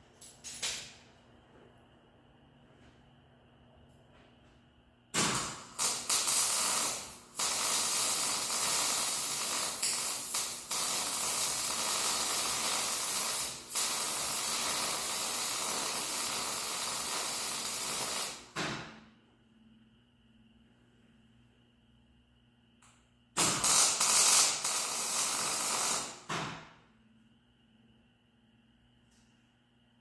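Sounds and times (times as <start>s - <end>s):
welder arcing hiss: 5.2s - 18.6s, 23.4s - 26.5s.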